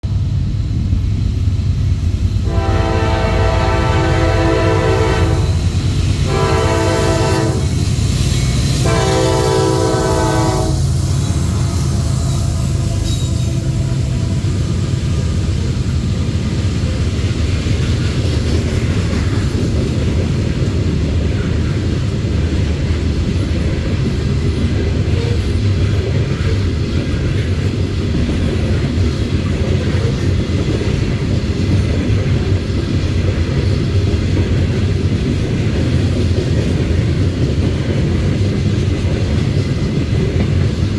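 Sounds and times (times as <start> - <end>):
train rolling by: 0.0 - 40.9
locomotive horn blasts: 2.5 - 7.8, 8.8 - 14.8.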